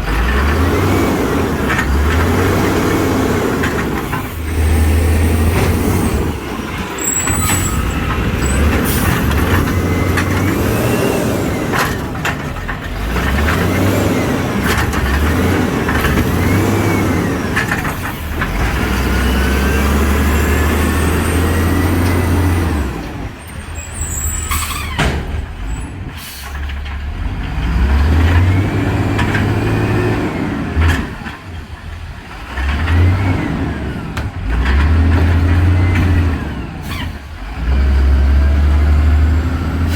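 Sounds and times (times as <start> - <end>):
garbage truck engine revving: 0.0 - 39.9
air brake hissing: 26.1 - 26.7, 36.8 - 37.2.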